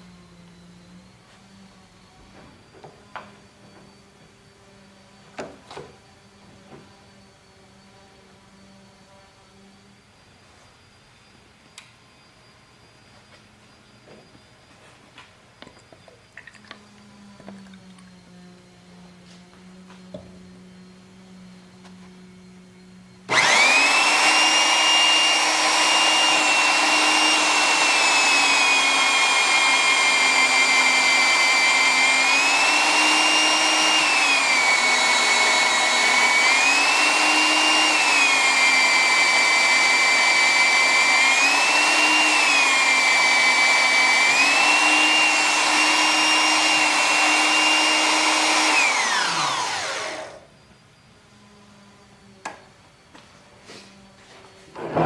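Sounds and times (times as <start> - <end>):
drill press motor whining: 15.6 - 50.5.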